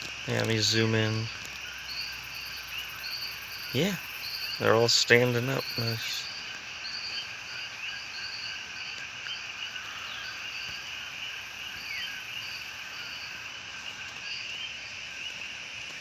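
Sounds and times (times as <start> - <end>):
insects buzzing: 0.0 - 16.0.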